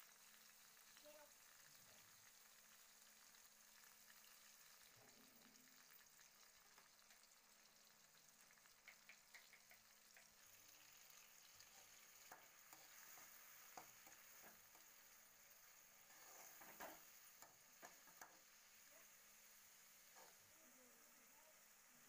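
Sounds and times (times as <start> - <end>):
tomatoes frying in oil: 0.0 - 22.0
steel spoon stirring: 16.0 - 18.4.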